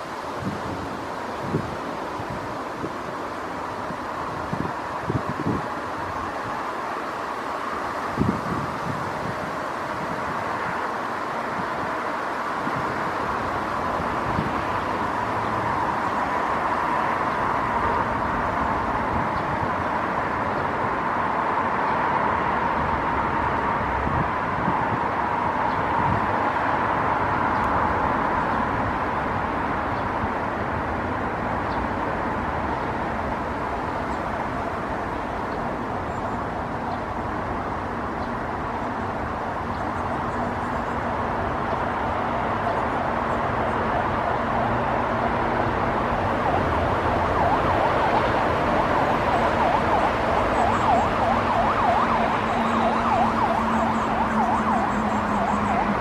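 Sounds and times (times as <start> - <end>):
road traffic noise: 0.0 - 56.0
emergency vehicle siren wailing: 3.6 - 30.5, 38.3 - 56.0.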